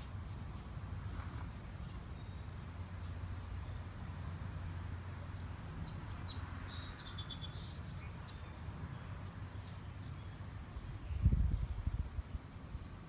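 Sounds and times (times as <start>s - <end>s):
small birds chirping: 1.8s - 4.5s, 5.2s - 11.9s.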